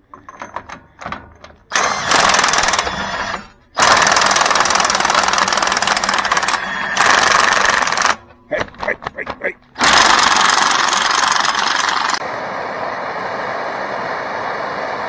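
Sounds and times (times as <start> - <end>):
impact wrench rattling: 0.0 - 9.2, 9.8 - 12.2.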